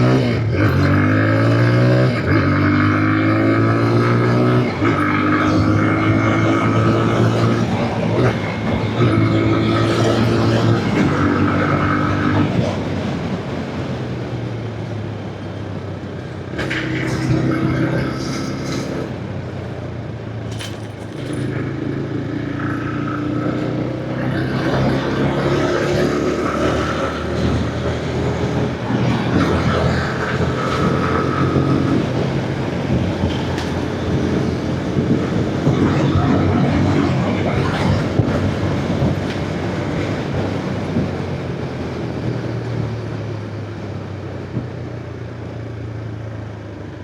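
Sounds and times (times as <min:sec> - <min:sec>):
motorcycle engine running: 0:19.6 - 0:40.0
wind noise: 0:24.3 - 0:43.0.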